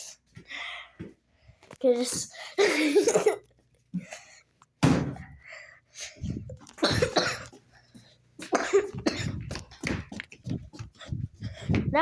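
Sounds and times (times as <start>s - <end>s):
person coughing: 2.6s - 3.5s, 6.8s - 7.6s, 8.4s - 9.5s.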